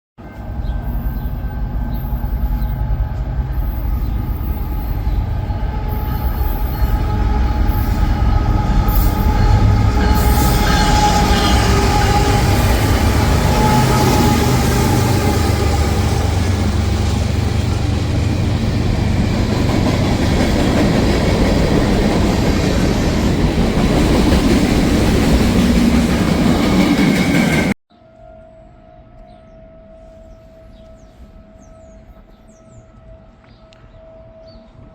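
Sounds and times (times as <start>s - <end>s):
train rumbling past: 0.2s - 27.8s.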